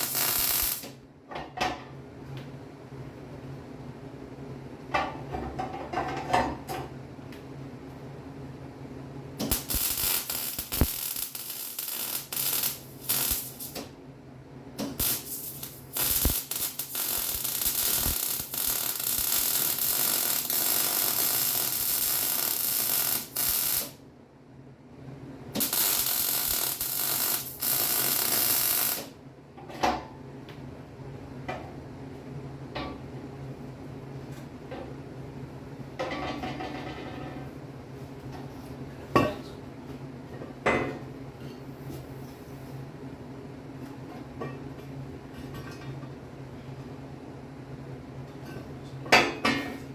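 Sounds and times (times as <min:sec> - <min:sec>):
arc welding crackling sizzle: 0:00.0 - 0:01.0, 0:09.4 - 0:14.0, 0:14.8 - 0:24.0, 0:25.5 - 0:29.2.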